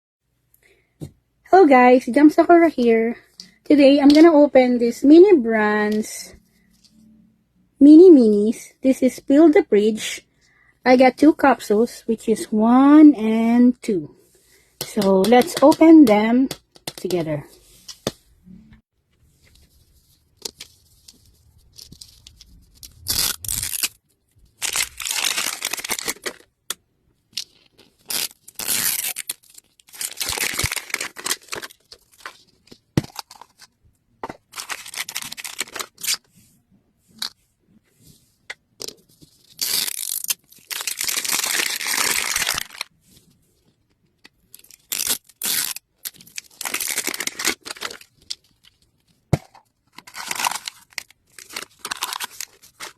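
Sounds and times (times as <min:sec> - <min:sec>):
plastic wrapping tearing and crinkling: 0:20.4 - 0:26.5, 0:27.4 - 0:33.7, 0:34.4 - 0:36.3, 0:39.4 - 0:42.9, 0:44.5 - 0:48.9, 0:49.5 - 0:52.9.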